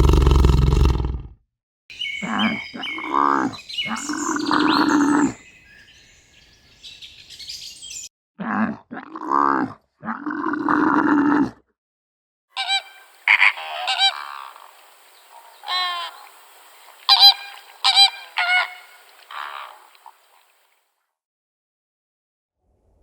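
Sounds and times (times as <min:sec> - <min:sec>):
low animal call: 0:00.0 - 0:01.2, 0:02.1 - 0:05.4
geese honking: 0:12.6 - 0:20.3.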